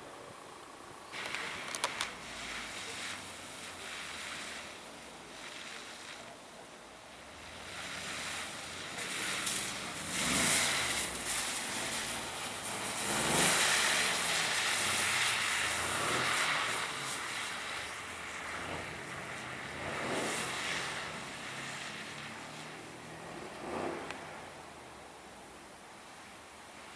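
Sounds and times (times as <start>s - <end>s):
race cars revving past: 7.4s - 24.7s.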